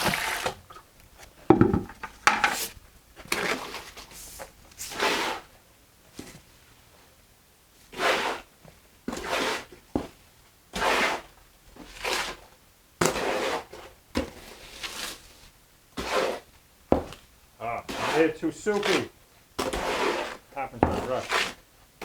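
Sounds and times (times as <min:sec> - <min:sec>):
tool scraping through wet mortar: 0:00.0 - 0:00.8, 0:03.3 - 0:05.5, 0:08.0 - 0:08.5, 0:09.1 - 0:09.7, 0:10.8 - 0:12.4, 0:13.0 - 0:15.3, 0:16.0 - 0:16.5, 0:17.6 - 0:21.6.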